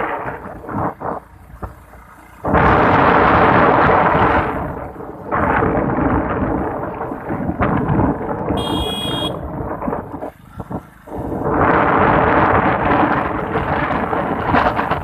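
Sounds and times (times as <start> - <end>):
high ringing tone: 8.6 - 9.4.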